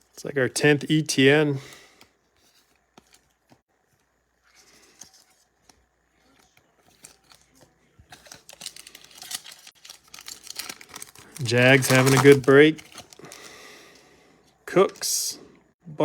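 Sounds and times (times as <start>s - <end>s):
foil wrapper tearing and crinkling: 6.9s - 13.6s.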